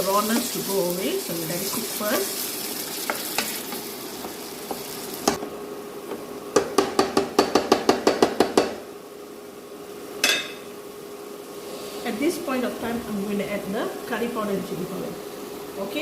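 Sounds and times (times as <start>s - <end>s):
spices sizzling in oil: 0.0s - 5.9s, 9.3s - 16.0s
spatula knocking against pan: 6.6s - 8.8s.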